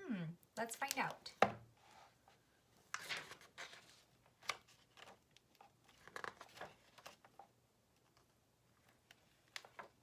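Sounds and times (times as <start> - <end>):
paper pages turning: 2.8 - 10.0.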